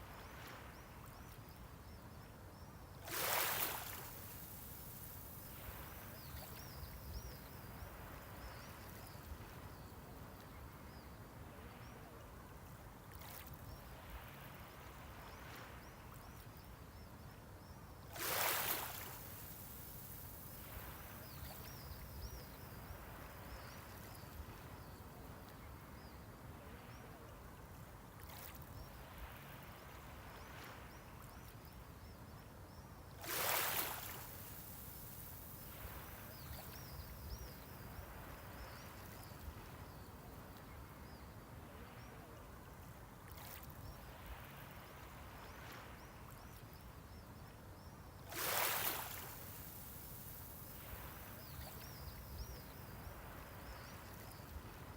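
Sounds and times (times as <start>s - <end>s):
sea waves washing onto shore: 3.1s - 8.2s, 18.1s - 23.4s, 33.2s - 39.0s, 48.3s - 54.9s.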